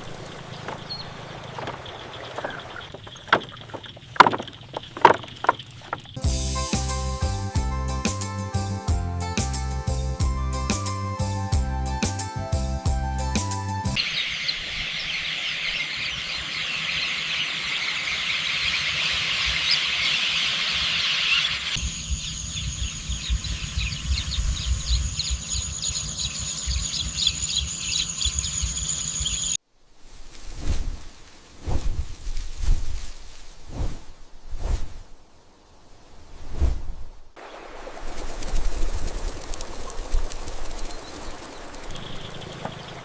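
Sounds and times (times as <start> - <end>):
high-pitched chirping chorus: 0.2 - 7.4, 13.9 - 29.6, 39.4 - 43.0
wind gusting on microphone: 21.8 - 27.9, 30.1 - 43.0.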